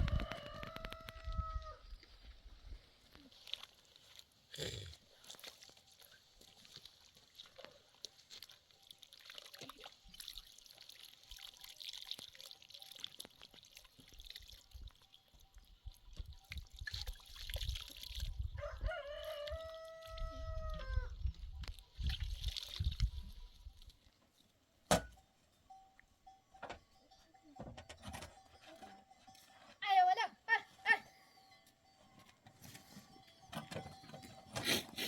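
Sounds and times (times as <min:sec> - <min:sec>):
drawn-out animal call: 0:25.7 - 0:35.0.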